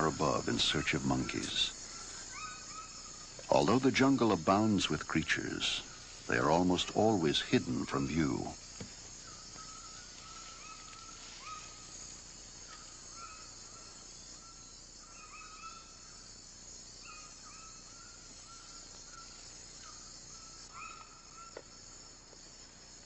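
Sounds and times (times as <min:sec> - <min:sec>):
high insect drone: 0:00.0 - 0:23.0.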